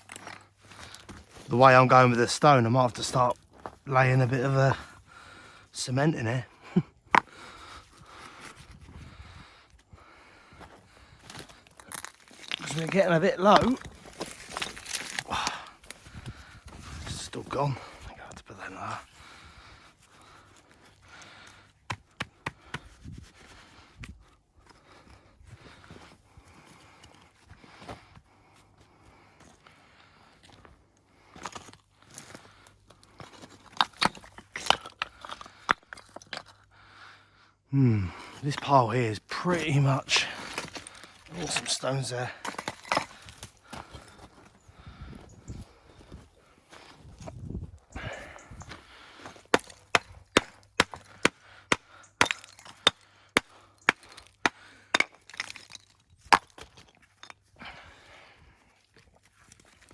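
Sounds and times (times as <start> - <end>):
stones clacking and scraping: 0.0 - 5.0, 5.8 - 8.9, 10.6 - 19.4, 20.0 - 28.1, 30.4 - 36.7, 38.1 - 44.6, 46.0 - 57.8, 58.8 - 59.9
hammer striking stone: 49.5 - 55.6.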